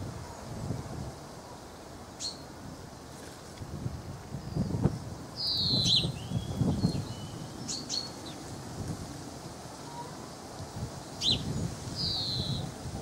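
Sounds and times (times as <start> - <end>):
small birds chirping: 1.6 - 2.5, 4.3 - 8.5, 9.8 - 12.8.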